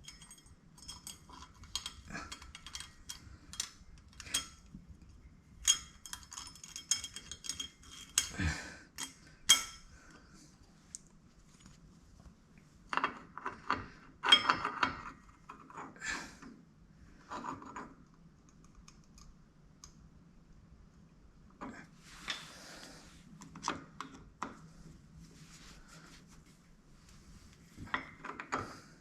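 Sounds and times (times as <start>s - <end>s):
metal tools clinking and clanking: 0.0s - 4.7s, 5.6s - 9.9s.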